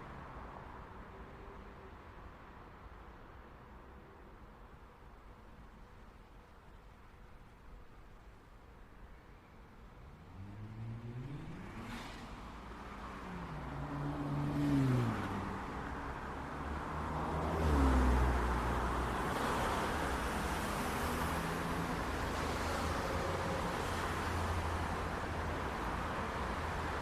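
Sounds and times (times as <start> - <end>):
traffic and tyre noise: 0.0 - 27.0
car engines accelerating and passing: 9.9 - 27.0.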